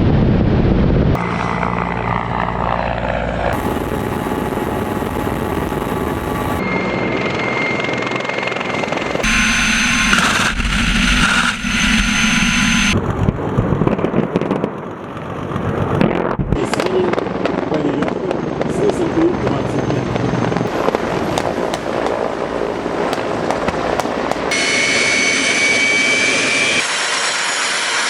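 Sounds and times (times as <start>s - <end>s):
helicopters running: 0.1s - 26.7s
harsh hissing: 9.2s - 13.0s.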